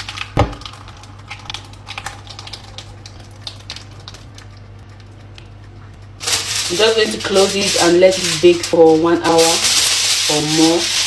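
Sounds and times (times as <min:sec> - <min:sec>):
steady low hum: 0:00.0 - 0:11.0
soft clicks and patter: 0:00.7 - 0:08.8.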